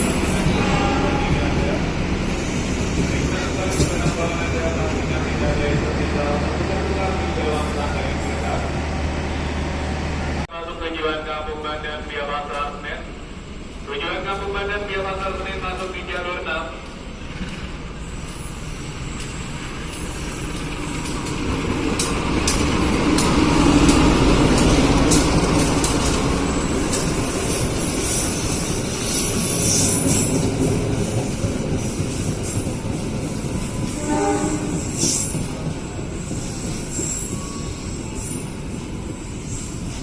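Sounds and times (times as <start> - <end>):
train rumbling: 0.0 - 40.0
high wheel squeal: 24.3 - 40.0.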